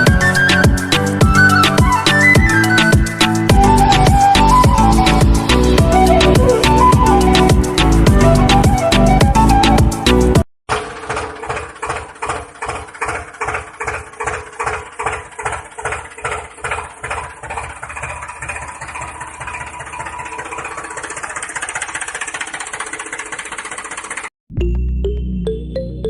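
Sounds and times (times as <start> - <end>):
small motor chugging: 10.7 - 24.3.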